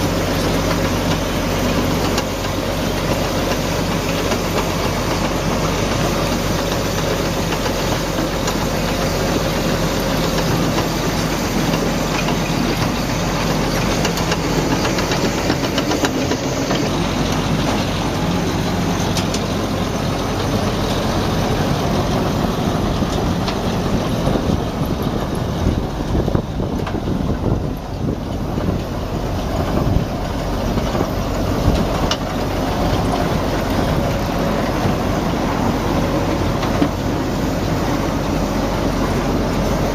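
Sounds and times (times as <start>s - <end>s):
heavy machinery engine drone: 0.0s - 39.9s.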